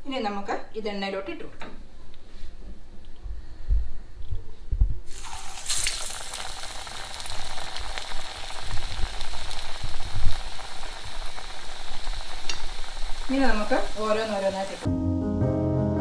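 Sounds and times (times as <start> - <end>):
oil sizzling while deep-frying: 5.1 - 14.9.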